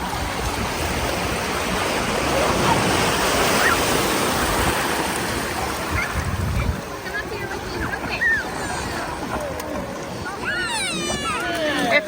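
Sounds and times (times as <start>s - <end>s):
faint distant voices: 0.0s - 12.0s
surf washing at the shore: 0.0s - 12.0s.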